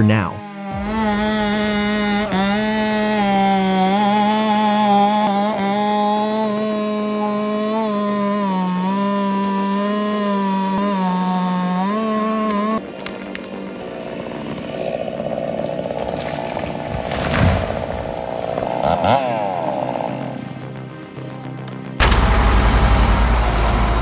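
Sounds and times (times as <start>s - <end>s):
rough noisy machine: 0.0s - 20.5s, 22.0s - 24.0s
chainsaw cutting: 0.0s - 20.6s, 22.0s - 24.0s
sharp cracks: 12.5s - 13.8s, 22.0s - 24.0s.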